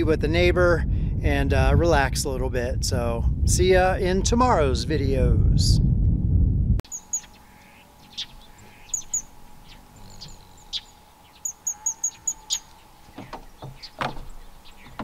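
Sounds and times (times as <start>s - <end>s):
small birds chirping: 6.8s - 15.0s
sharp down-slurred bird calls: 6.9s - 15.0s.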